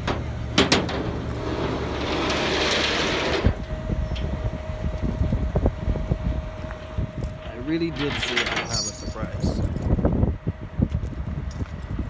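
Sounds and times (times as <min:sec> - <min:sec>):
heavy machinery rumbling: 0:00.0 - 0:10.6
sharp metal clanks: 0:07.9 - 0:09.6.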